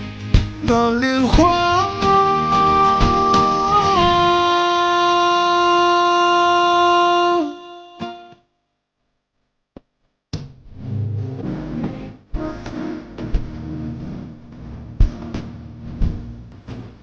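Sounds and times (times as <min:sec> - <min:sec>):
pop-rock music with guitar: 0:00.0 - 0:08.3.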